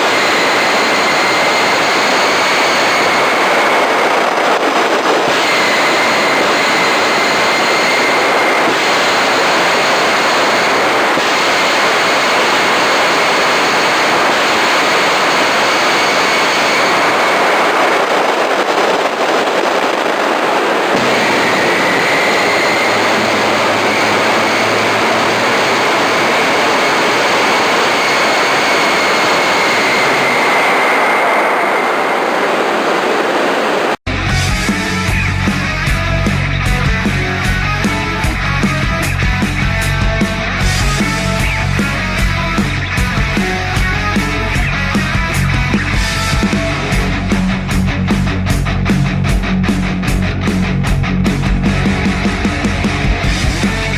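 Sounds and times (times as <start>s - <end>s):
high turbine whine: 0.0s - 53.9s
jet engine roaring: 0.0s - 53.9s.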